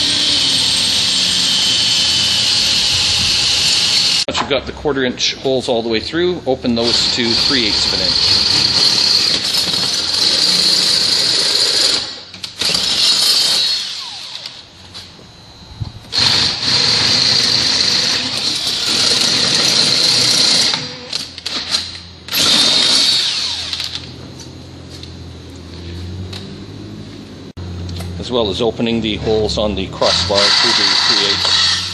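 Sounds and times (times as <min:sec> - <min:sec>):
cordless drill boring metal: 0:00.0 - 0:04.3, 0:06.8 - 0:14.7, 0:16.1 - 0:24.1, 0:30.0 - 0:31.9.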